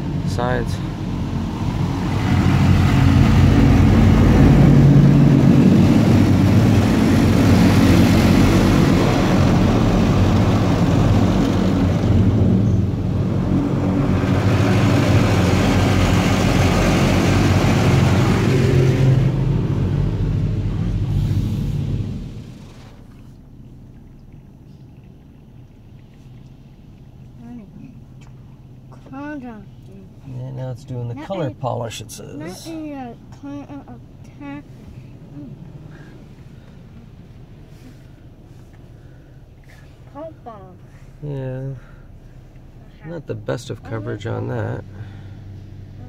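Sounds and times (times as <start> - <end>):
water jets spraying car body: 0.0 - 27.6
low rumble: 0.0 - 46.0.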